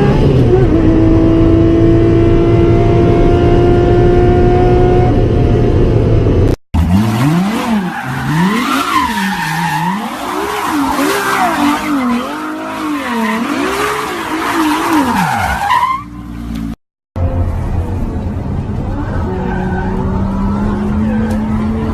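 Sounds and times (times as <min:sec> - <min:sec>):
tyres squealing: 0:07.5 - 0:16.2.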